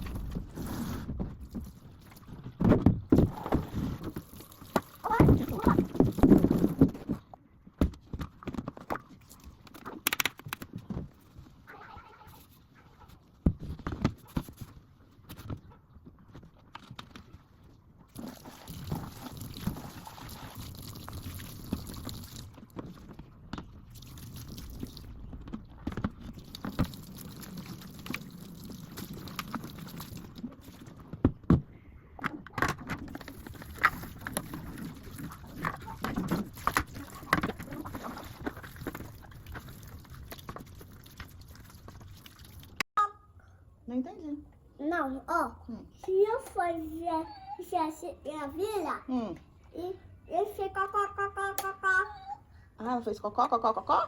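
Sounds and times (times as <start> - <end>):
water running: 3.4 - 6.8, 18.1 - 22.6
plastic parts being scrubbed: 33.0 - 42.2.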